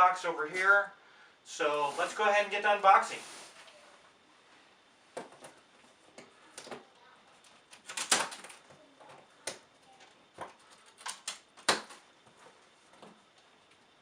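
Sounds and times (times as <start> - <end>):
rustling: 1.7 - 4.7
plastic straps clicking and snapping: 7.4 - 8.7, 10.4 - 12.0.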